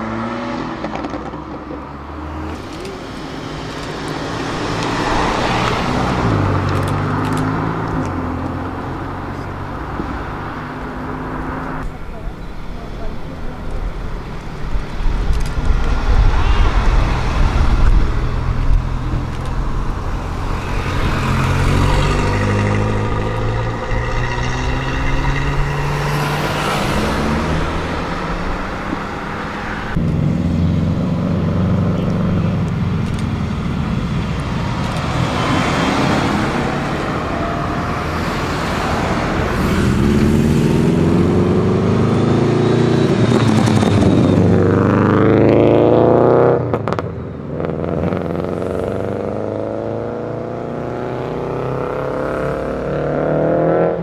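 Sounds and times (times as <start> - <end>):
car engine revving: 0.0 - 11.9, 15.1 - 54.0
car engines accelerating past: 15.2 - 54.0.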